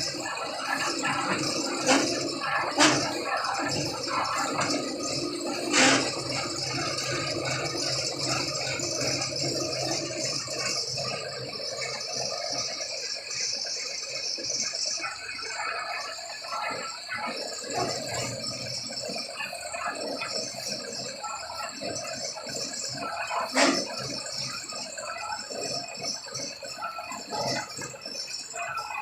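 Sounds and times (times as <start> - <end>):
continuous rattling: 0.0 - 29.0.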